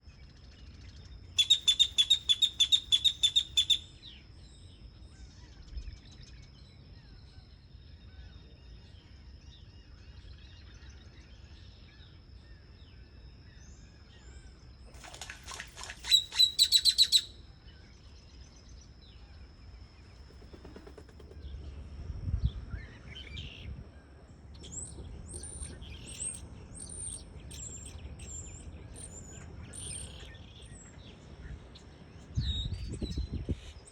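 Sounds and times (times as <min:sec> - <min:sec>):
short high bird chirps: 0:01.4 - 0:03.9, 0:16.0 - 0:17.3.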